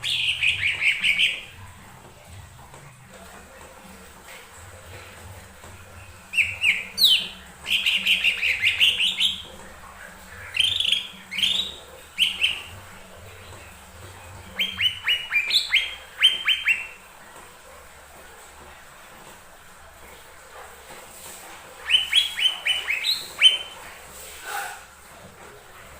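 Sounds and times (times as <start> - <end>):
bird singing chirps and whistles: 0.0 - 1.5, 6.3 - 9.5, 10.5 - 12.7, 14.5 - 17.0, 21.8 - 23.8.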